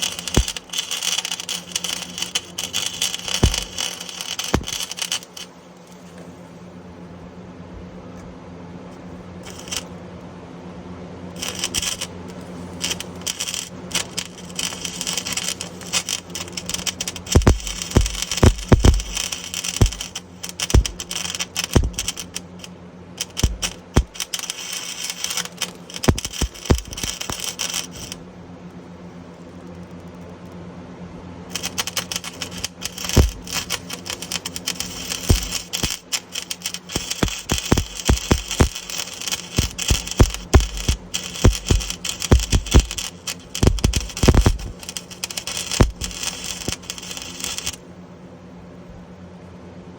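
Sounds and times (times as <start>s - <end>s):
welder arc crackling: 0.0s - 6.0s, 9.4s - 9.9s, 11.4s - 28.2s, 31.5s - 47.8s
steady low hum: 0.0s - 49.9s.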